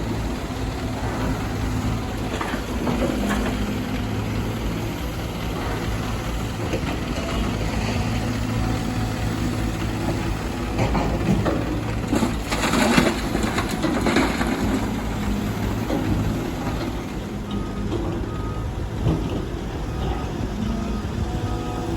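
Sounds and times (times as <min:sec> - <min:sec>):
excavator diesel engine: 0:00.0 - 0:21.9
rock and soil crashing: 0:09.9 - 0:17.0.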